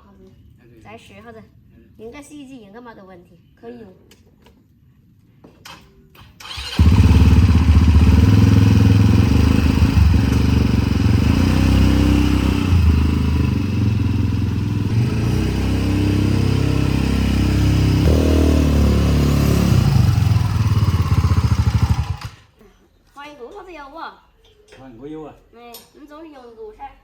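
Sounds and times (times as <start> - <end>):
motorcycle engine running: 6.6 - 22.5.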